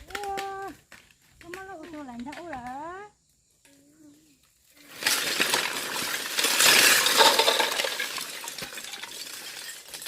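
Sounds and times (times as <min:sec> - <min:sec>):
hard objects clattering: 0:05.0 - 0:10.0.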